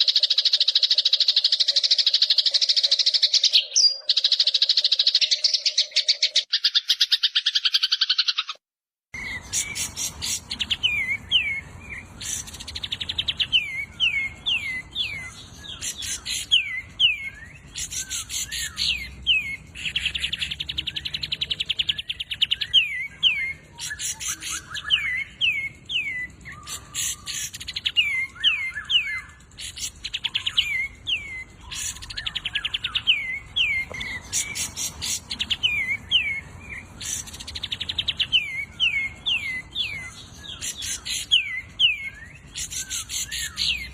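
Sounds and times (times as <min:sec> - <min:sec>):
songbird trills and whistles: 0:09.2 - 0:43.9.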